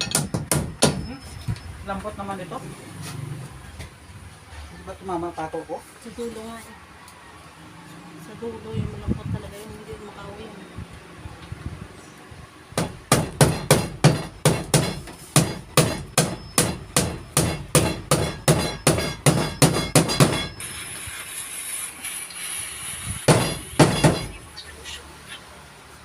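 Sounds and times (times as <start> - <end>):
hammer driving nail into wood: 12.8 - 20.6, 23.3 - 24.3.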